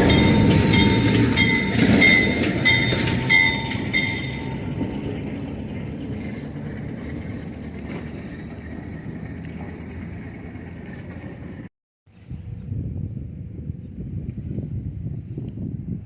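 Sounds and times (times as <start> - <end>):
train rumbling: 0.0 - 11.7.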